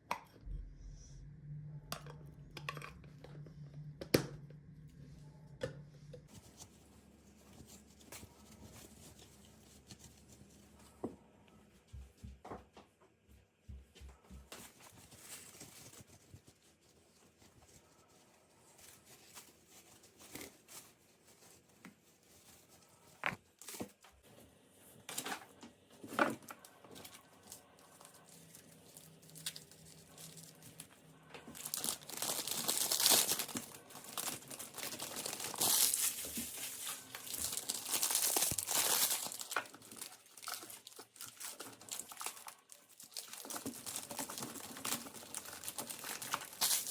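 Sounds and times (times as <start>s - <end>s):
plastic packaging crinkling: 6.3s - 10.8s, 14.6s - 24.0s, 26.0s - 46.9s.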